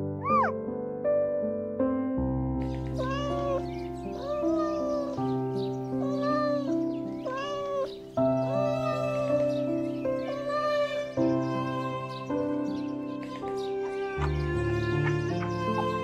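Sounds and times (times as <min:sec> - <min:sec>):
background music: 0:00.0 - 0:16.0
cat meowing: 0:00.2 - 0:00.5, 0:02.8 - 0:09.3, 0:10.2 - 0:12.0.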